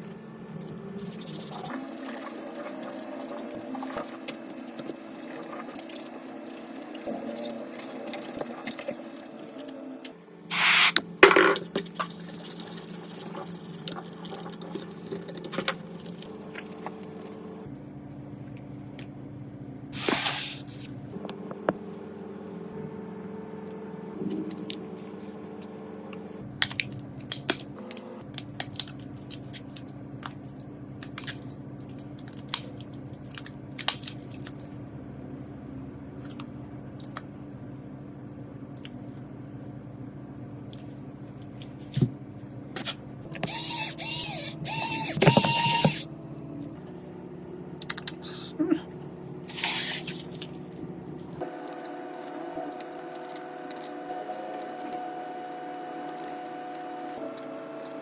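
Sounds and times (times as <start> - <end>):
short hissing sprays: 10.5 - 11.0.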